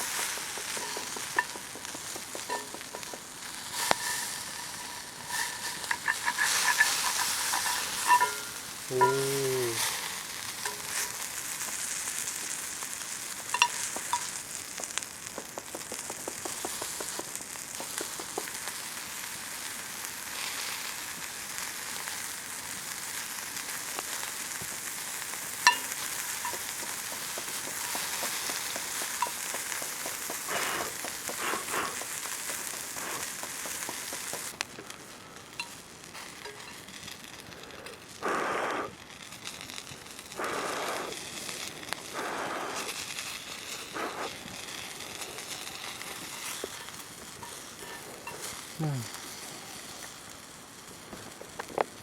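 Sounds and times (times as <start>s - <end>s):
food sizzling over campfire: 0.0s - 52.0s.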